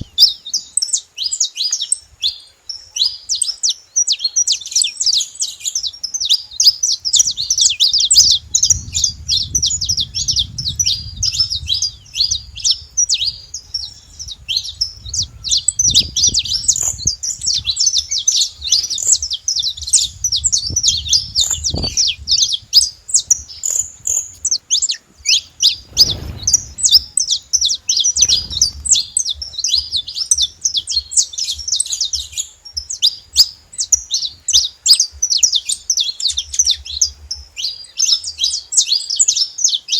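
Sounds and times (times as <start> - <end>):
finches chirping: 0.0 - 39.9
low rumble: 7.0 - 24.2, 25.6 - 32.1.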